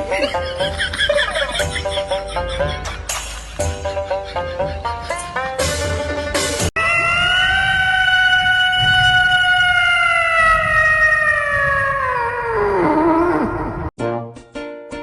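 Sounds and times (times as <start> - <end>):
plucked music notes: 14.0 - 15.0.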